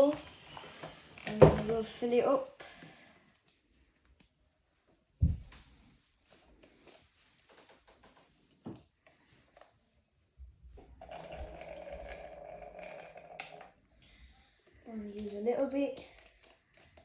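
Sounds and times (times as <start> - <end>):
steady pouring: 10.9 - 14.0.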